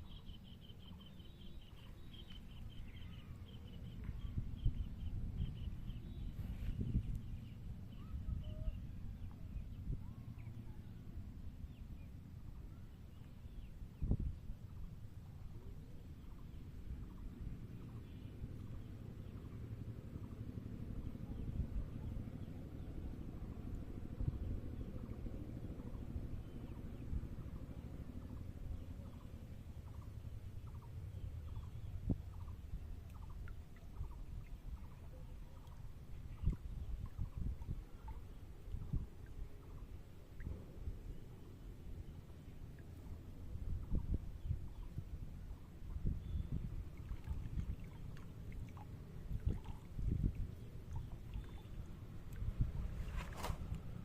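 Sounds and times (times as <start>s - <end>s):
birds chirping: 0.0s - 10.9s, 43.8s - 53.2s
steady low rumble: 0.0s - 54.0s.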